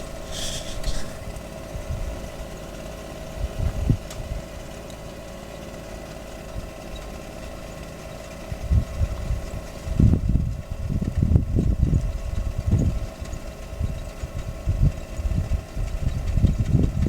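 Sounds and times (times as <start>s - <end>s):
wind buffeting microphone: 0.0s - 2.5s, 3.3s - 4.5s, 8.5s - 17.0s
engine running steadily: 0.0s - 17.0s.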